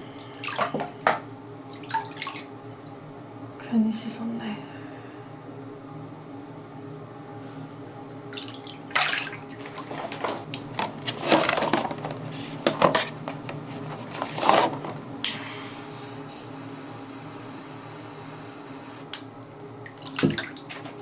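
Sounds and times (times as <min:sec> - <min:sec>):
low room hum: 0:00.0 - 0:21.0
water splashing in a sink: 0:00.2 - 0:03.0, 0:08.1 - 0:13.7, 0:19.2 - 0:21.0
dishes clattering: 0:09.6 - 0:15.0.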